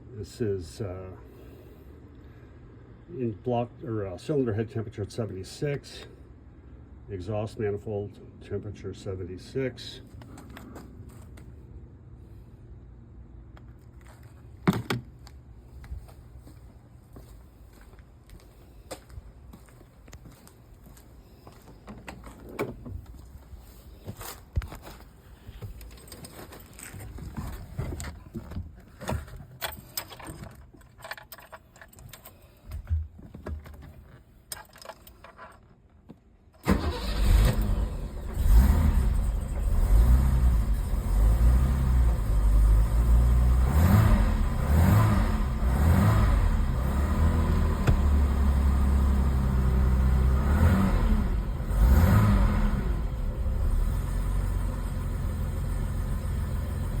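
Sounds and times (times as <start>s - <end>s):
engine starter clicks and knocks: 36.6s - 39.6s
car engine starting and idling: 36.6s - 57.0s.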